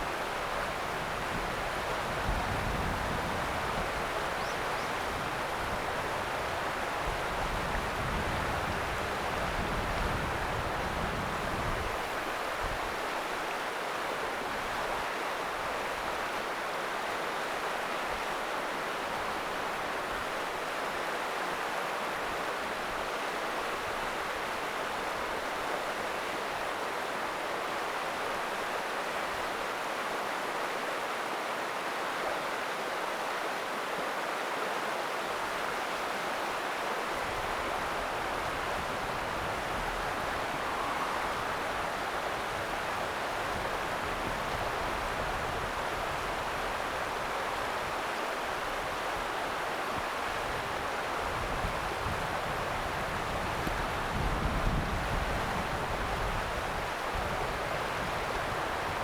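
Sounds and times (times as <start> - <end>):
river water rushing: 11.8 - 59.0.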